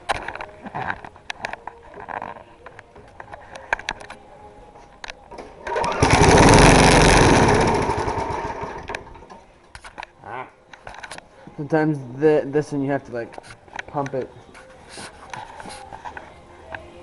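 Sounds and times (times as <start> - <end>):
lawn mower engine running: 5.3 - 9.2.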